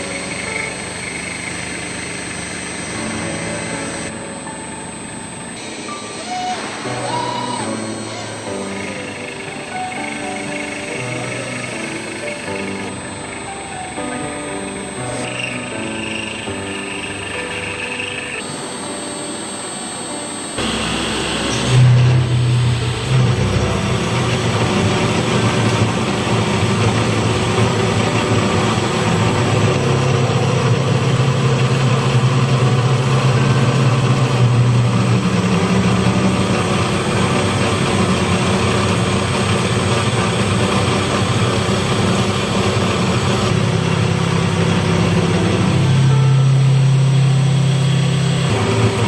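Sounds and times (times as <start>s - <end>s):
large engine droning: 0.0s - 49.0s.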